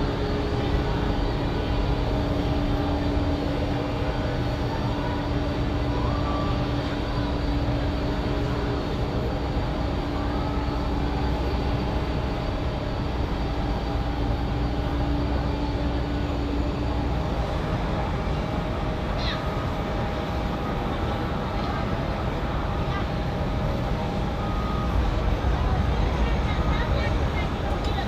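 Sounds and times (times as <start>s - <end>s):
jet engines rumbling and whining: 0.0s - 28.0s.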